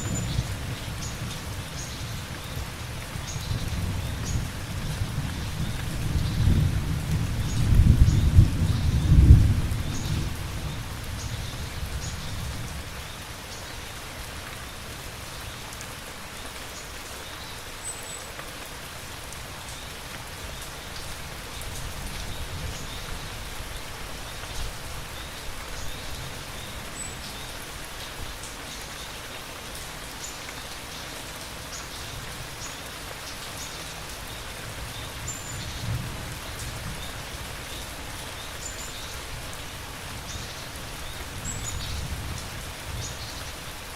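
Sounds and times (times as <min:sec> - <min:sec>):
steady rain: 0:00.0 - 0:43.9
thunder rumbling: 0:05.2 - 0:10.6.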